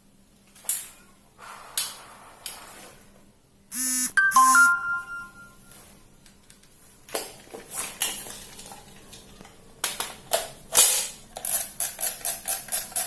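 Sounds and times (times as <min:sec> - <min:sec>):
airsoft gun motor buzzing: 0:03.8 - 0:04.1
ringing tone: 0:03.8 - 0:05.7.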